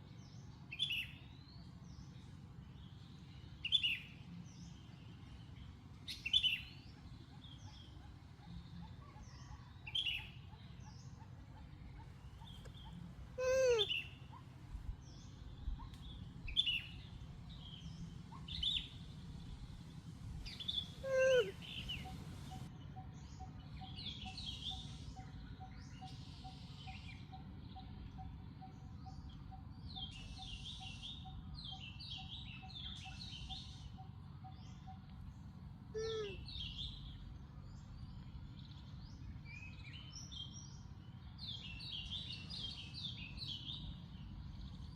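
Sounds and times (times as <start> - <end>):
low background hum: 0.0 - 44.9
birds chirping: 0.2 - 44.9.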